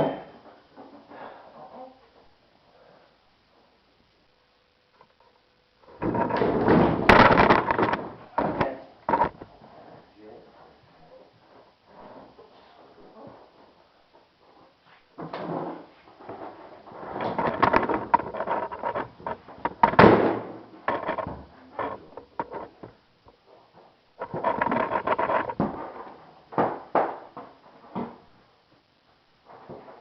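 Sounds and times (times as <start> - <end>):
sharp cracks of mold popping: 6.2 - 9.5
mold scraping and creaking: 24.2 - 25.7.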